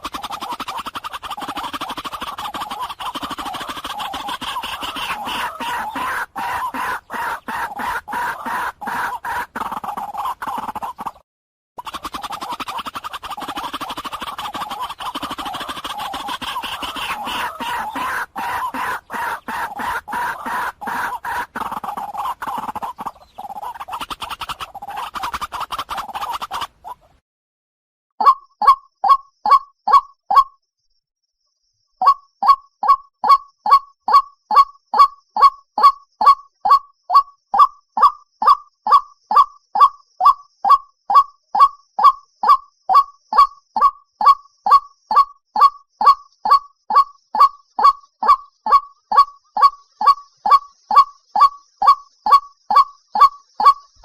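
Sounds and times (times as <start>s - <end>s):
waterhen calling: 0.0s - 11.2s, 11.8s - 27.2s, 42.4s - 54.0s.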